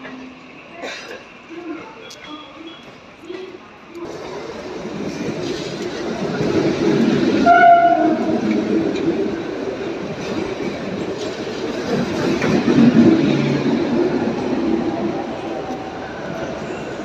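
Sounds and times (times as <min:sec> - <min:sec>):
train rumbling: 0:00.0 - 0:17.0
train horn blast: 0:07.4 - 0:08.5.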